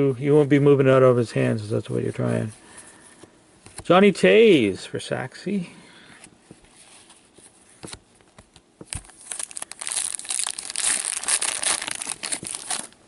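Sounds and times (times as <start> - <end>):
foil wrapper tearing and crumpling: 9.0 - 13.0.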